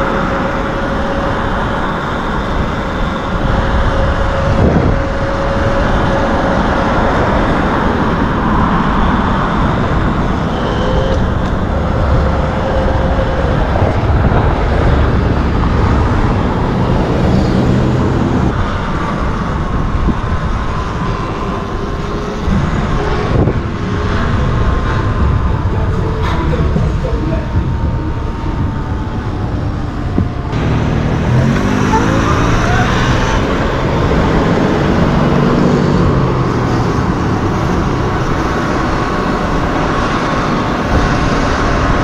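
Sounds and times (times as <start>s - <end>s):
wind and road noise: 0.0s - 42.0s
electric motor whine: 30.5s - 40.7s.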